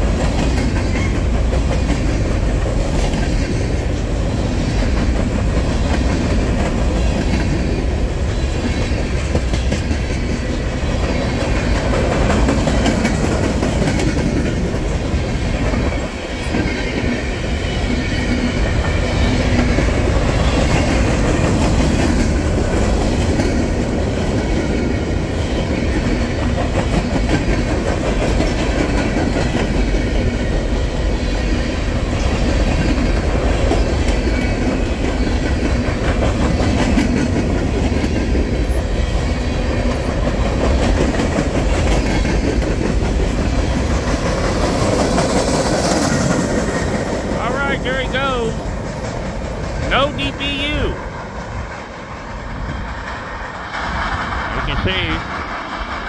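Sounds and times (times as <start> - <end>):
freight train cars rolling past: 0.0 - 56.0
wheels clicking over rail joints: 4.8 - 17.2.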